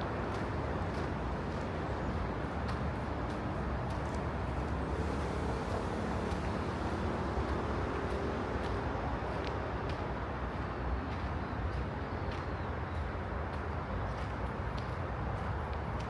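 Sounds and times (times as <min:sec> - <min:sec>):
distant traffic rumble: 0:00.0 - 0:16.0
faint light ticks: 0:00.3 - 0:04.3, 0:07.4 - 0:16.0.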